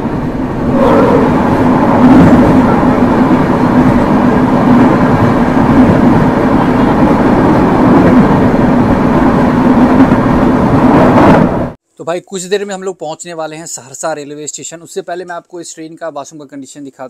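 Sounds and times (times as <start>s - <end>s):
low hum: 0.0s - 10.8s
train wheels rumbling on track: 0.0s - 11.8s.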